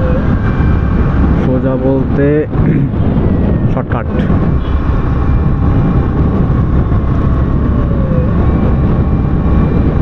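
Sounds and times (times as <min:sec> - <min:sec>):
wind and road noise: 0:00.0 - 0:10.0.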